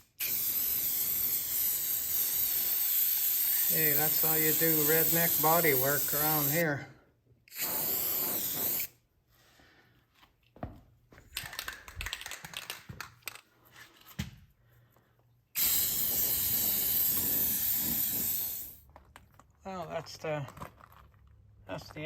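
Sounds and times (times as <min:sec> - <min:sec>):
aerosol spray can hissing: 0:00.0 - 0:06.8, 0:07.5 - 0:08.9, 0:15.6 - 0:18.8.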